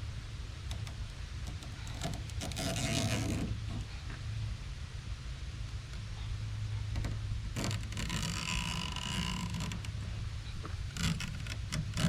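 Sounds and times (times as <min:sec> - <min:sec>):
screen creaking and clicks: 0:00.7 - 0:03.9, 0:07.0 - 0:10.0, 0:10.6 - 0:12.0.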